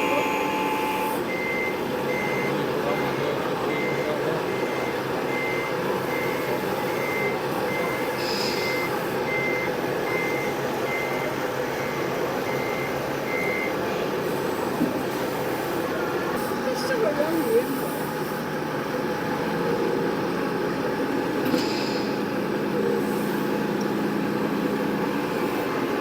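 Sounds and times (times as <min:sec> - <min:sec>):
reversing alarm beeping: 0:00.0 - 0:13.8.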